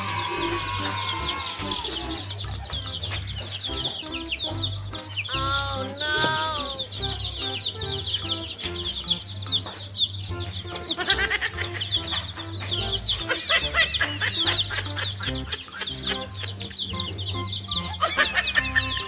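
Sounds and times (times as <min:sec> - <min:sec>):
louder lower calls: 0:00.0 - 0:02.5, 0:05.2 - 0:07.1
chicks peeping: 0:00.0 - 0:19.0.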